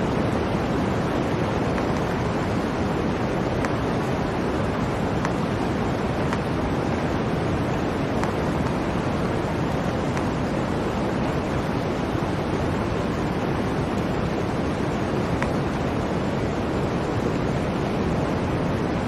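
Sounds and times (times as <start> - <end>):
blizzard wind rushing: 0.0 - 19.0.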